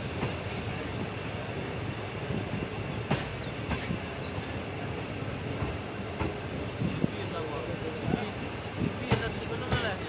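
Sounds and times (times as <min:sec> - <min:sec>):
train wheels rumbling on rail: 0:00.0 - 0:10.0
faint high wheel squeal: 0:02.7 - 0:09.0.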